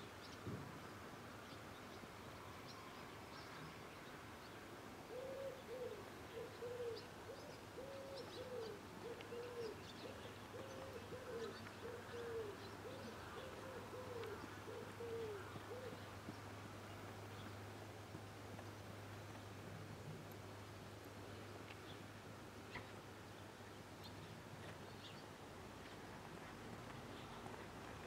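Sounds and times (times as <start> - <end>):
bird hooting and cooing: 5.1 - 16.0.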